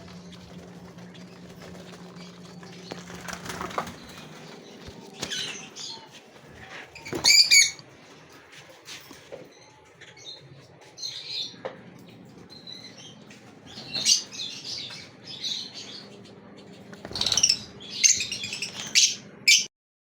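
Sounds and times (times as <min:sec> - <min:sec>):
loud rustling: 0:00.0 - 0:09.1
finches chirping: 0:11.0 - 0:19.7.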